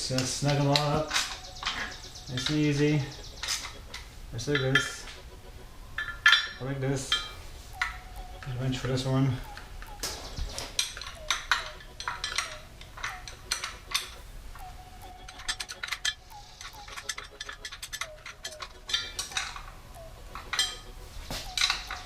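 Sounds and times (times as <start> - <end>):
wrench metallic clicks: 15.2 - 19.7.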